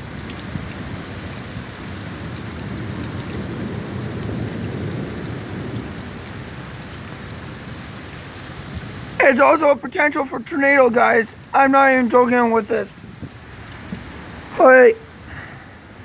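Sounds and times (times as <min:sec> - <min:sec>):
low thunder rumble: 0:00.0 - 0:08.0
heavy rain pouring: 0:00.0 - 0:16.0.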